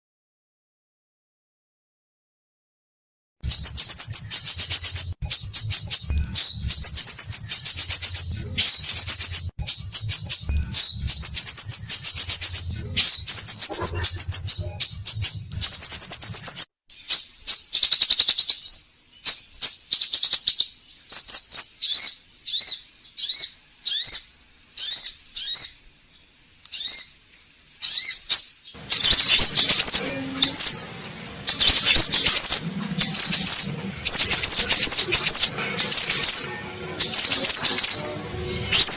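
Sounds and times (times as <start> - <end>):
bird singing high chirps: 3.4 - 27.2, 27.8 - 38.9.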